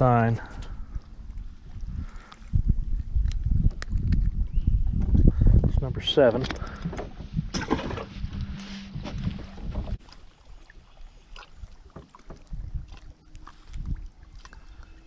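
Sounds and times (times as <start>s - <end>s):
low rumble: 6.6s - 10.0s
light knocks in boat: 11.9s - 12.6s.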